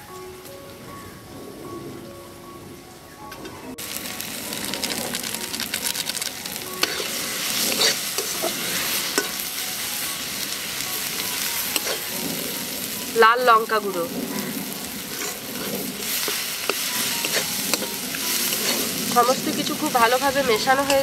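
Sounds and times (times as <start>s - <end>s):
vegetables sizzling in hot oil: 3.8s - 21.0s
spatula scraping a pan: 6.8s - 9.4s, 11.7s - 12.1s, 14.4s - 19.1s.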